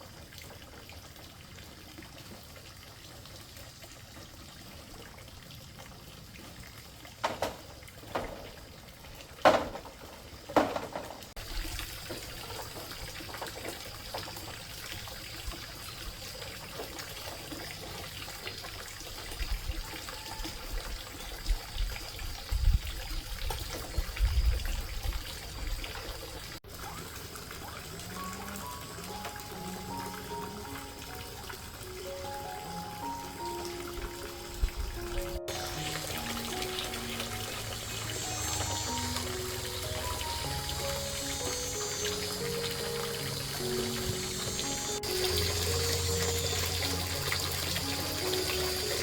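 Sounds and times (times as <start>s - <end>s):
water trickling and splashing: 0.0s - 49.0s
sharp knocks: 7.2s - 8.5s, 9.4s - 11.3s.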